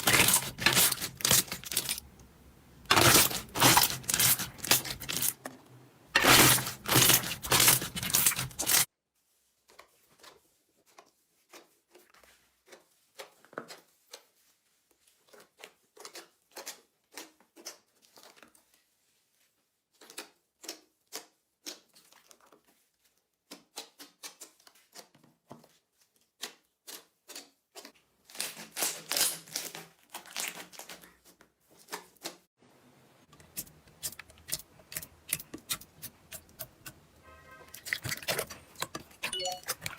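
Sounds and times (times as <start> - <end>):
slime crackling and popping: 2.9 - 5.4, 6.2 - 8.9.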